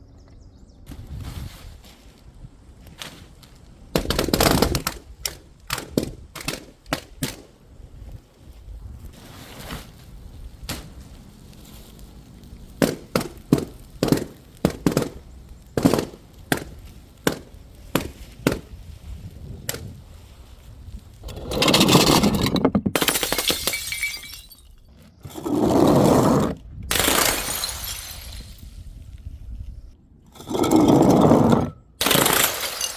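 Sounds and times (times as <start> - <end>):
glass bottles clinking: 21.3 - 24.8
glass shattering: 21.3 - 24.9, 26.9 - 28.7, 32.0 - 32.9.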